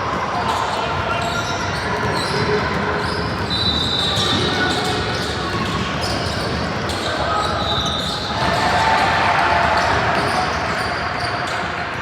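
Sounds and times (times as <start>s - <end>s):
echoing crowd chatter: 0.0s - 12.0s
shoe squeak on floor: 0.7s - 8.4s.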